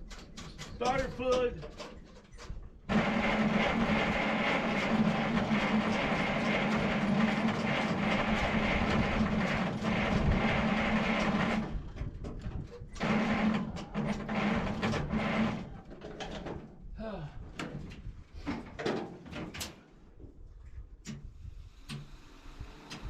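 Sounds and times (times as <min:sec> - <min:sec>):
starter motor cranking engine: 0:02.9 - 0:12.0, 0:13.0 - 0:15.8.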